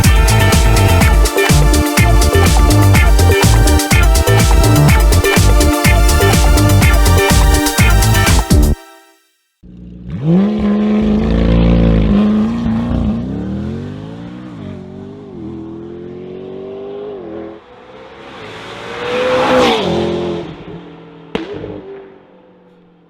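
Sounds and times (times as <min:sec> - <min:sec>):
sports car accelerating hard: 0:09.7 - 0:22.6.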